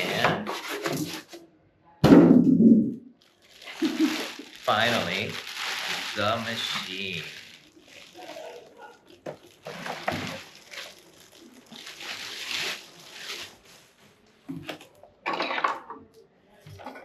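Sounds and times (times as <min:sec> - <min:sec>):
packaging rustling and scraping: 0:00.0 - 0:01.4, 0:03.2 - 0:15.0.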